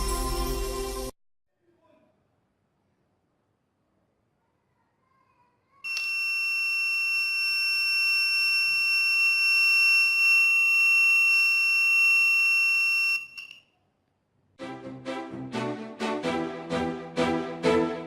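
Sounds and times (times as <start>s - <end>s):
high-pitched alarm buzzer: 5.9s - 13.5s.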